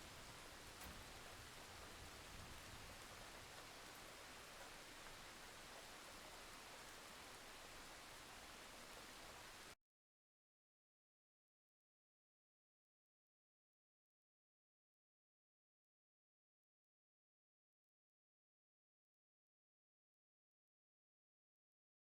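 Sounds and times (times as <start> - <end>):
faint rain hiss: 0.0 - 9.8.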